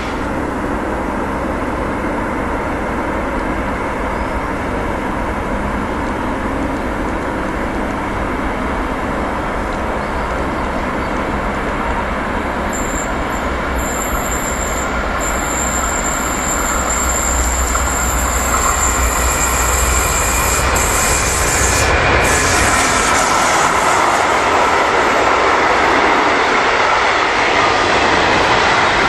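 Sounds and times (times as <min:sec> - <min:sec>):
locomotive low hum: 0:00.0 - 0:29.0
wheels rumbling on rail: 0:00.0 - 0:29.0
high-pitched wheel squeal: 0:12.7 - 0:23.4.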